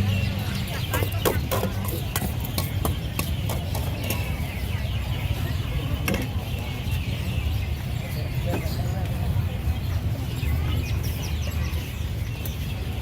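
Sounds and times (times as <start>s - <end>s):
distant voices: 0.0s - 13.0s
sharp clicks and clacks: 0.8s - 4.4s.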